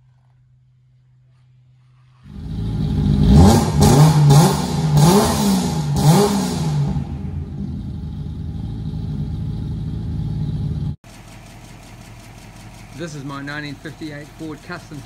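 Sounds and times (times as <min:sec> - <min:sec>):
car engine starting and revving: 0:02.2 - 0:15.0
car engine idling: 0:06.6 - 0:15.0.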